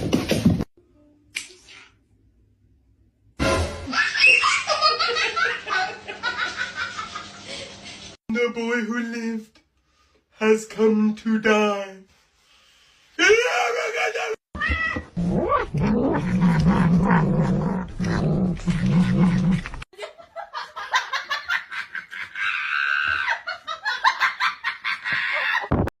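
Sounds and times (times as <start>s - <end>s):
cat yowling and meowing: 14.6s - 15.7s.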